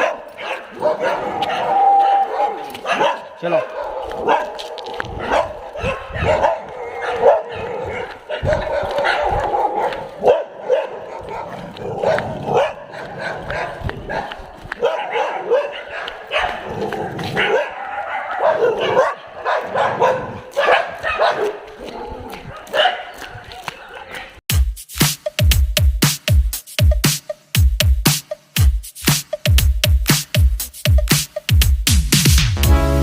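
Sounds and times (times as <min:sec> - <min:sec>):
dogs barking and yipping: 0:00.0 - 0:24.4.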